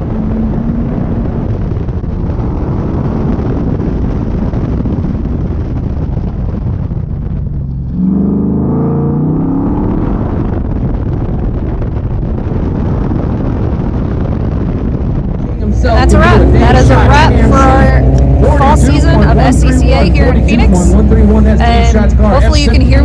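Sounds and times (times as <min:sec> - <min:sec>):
car engine revving: 0:00.0 - 0:04.2, 0:07.4 - 0:11.2, 0:15.4 - 0:23.0.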